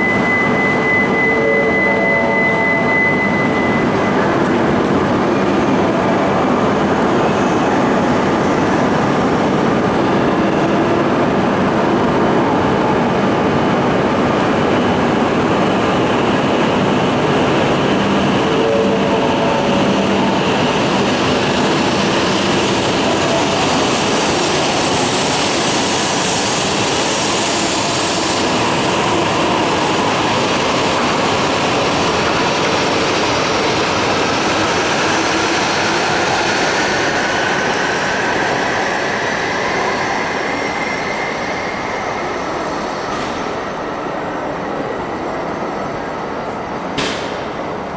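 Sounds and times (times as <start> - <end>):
train whine rising in pitch: 0.0 - 46.9
train rolling noise: 0.0 - 47.9.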